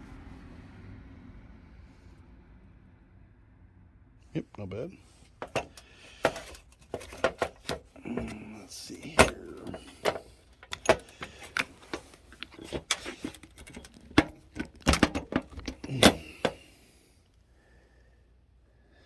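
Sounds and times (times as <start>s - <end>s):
engine mount parts clicking: 5.1s - 17.0s.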